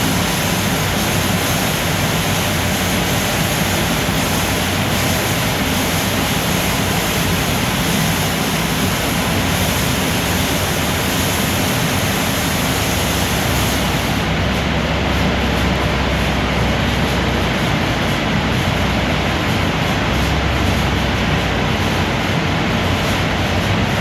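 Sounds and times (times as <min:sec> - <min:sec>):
water spraying over car: 0:00.0 - 0:14.5
car wash machinery running: 0:00.0 - 0:24.0.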